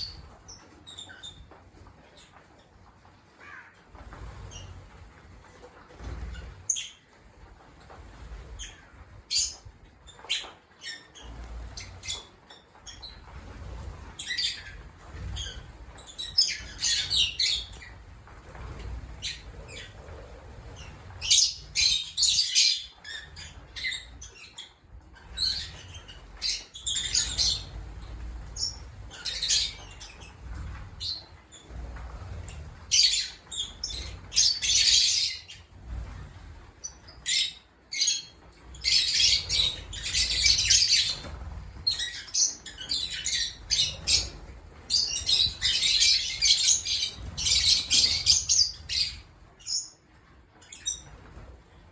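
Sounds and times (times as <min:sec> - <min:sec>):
lovebirds chattering: 0:08.4 - 0:36.1.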